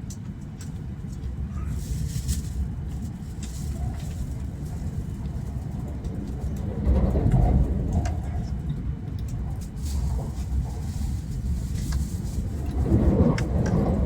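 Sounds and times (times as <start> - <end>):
train running rumble: 0.0 - 14.0.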